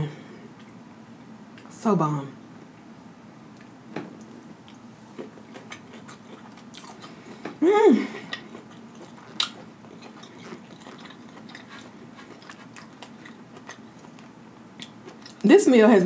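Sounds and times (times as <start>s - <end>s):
close chewing with wet clicks: 3.6s - 7.2s, 8.3s - 15.4s
person humming mmm: 7.6s - 8.4s.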